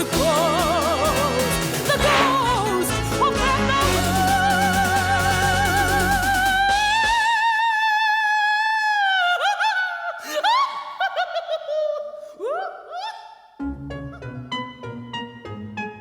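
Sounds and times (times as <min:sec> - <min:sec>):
musical accompaniment: 0:00.0 - 0:07.1
warbling swooping vocal glides: 0:01.9 - 0:02.9.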